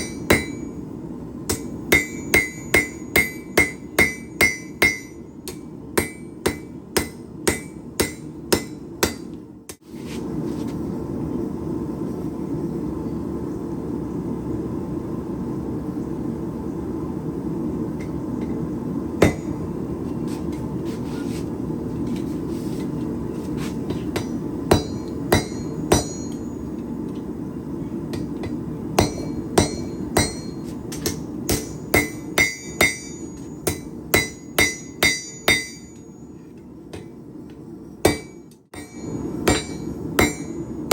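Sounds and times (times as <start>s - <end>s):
hammer striking steel on anvil: 0.0s - 0.8s, 1.5s - 9.8s, 19.2s - 19.7s, 23.9s - 26.5s, 28.1s - 37.2s, 38.0s - 40.6s.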